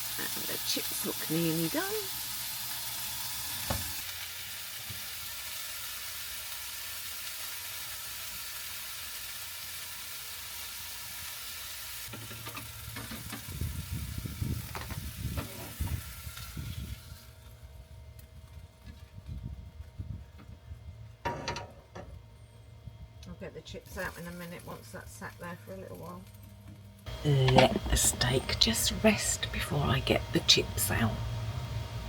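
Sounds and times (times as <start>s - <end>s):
steak sizzling in a frying pan: 0.0s - 17.4s.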